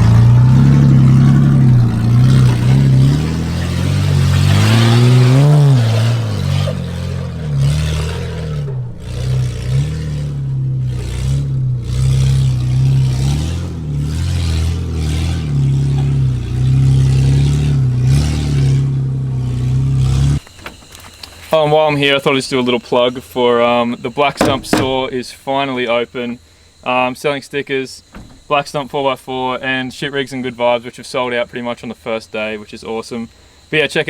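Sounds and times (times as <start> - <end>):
unmuffled engine revving: 0.0 - 22.7, 24.3 - 25.2, 28.0 - 29.7.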